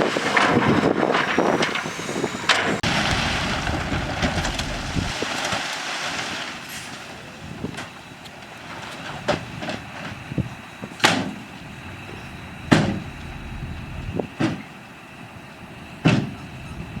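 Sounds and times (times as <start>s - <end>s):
heavy machinery running: 1.2s - 5.5s, 11.6s - 14.3s
metallic bangs and clanks: 2.8s - 5.3s, 11.9s - 14.2s.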